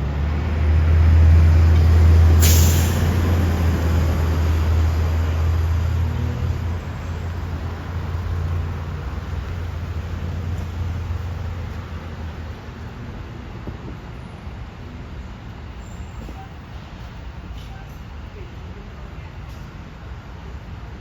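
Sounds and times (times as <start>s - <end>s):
diesel engine rumbling: 0.0s - 13.3s
air brake hiss: 2.4s - 3.2s.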